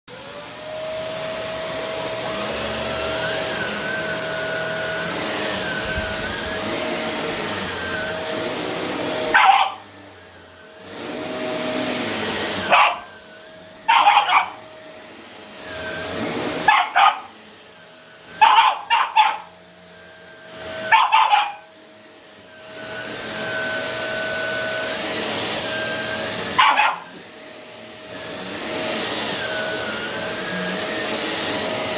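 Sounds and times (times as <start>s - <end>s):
vacuum cleaner whining: 0.1s - 31.9s
puppy barking: 9.3s - 9.9s, 12.6s - 13.2s, 13.9s - 14.7s, 16.6s - 17.4s, 18.4s - 19.6s, 20.9s - 21.7s, 26.6s - 27.2s.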